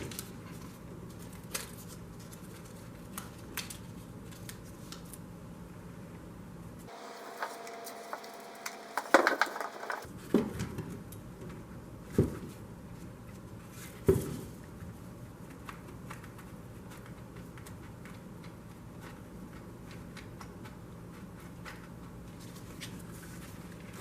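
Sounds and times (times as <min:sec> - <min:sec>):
rattling clatter: 0:06.9 - 0:10.0
small hard objects clicking: 0:06.9 - 0:10.1.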